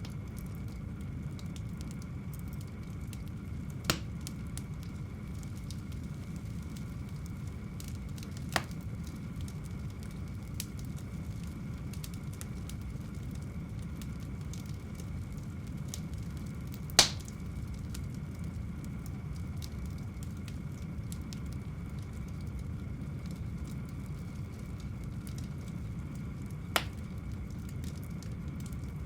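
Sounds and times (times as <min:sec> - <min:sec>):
loud fire pops: 0:00.0 - 0:22.5, 0:23.2 - 0:28.8
wood fire crackling: 0:00.0 - 0:29.0.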